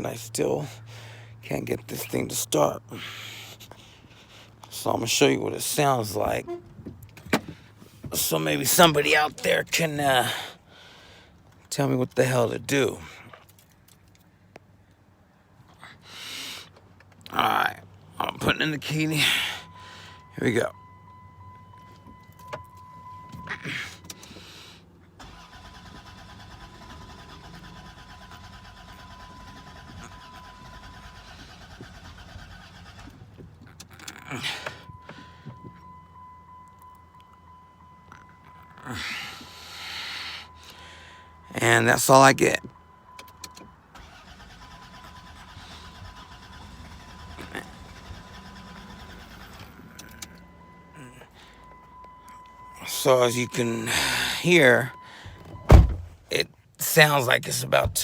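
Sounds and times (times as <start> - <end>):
starter cranking engine: 25.2 - 35.3, 43.2 - 51.6.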